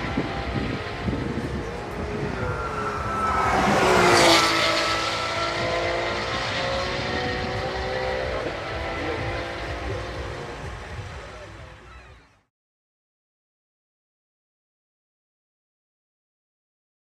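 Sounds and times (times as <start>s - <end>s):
race car passing by: 0.0s - 12.2s
engines droning: 0.0s - 12.4s.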